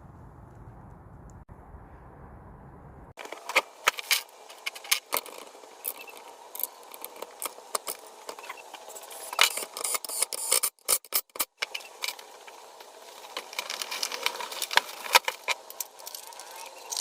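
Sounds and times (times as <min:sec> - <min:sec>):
low steady rumble: 0:00.0 - 0:03.2
metal tools clinking and scraping: 0:03.3 - 0:12.2, 0:13.3 - 0:17.0.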